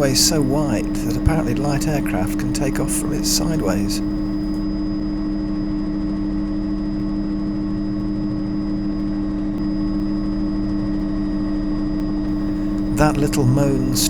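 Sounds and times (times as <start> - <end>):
high whine: 0.0 - 4.6, 12.3 - 14.0
helicopter drone inside cabin: 0.0 - 14.0.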